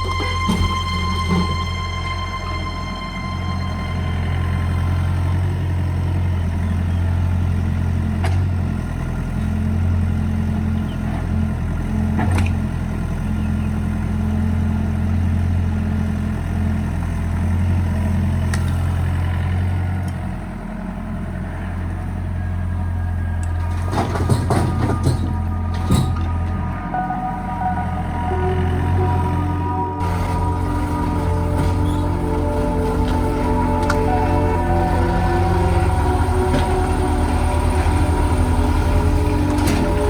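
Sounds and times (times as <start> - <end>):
excavator diesel engine running: 0.0 - 40.0
clattering knocks: 23.6 - 26.6.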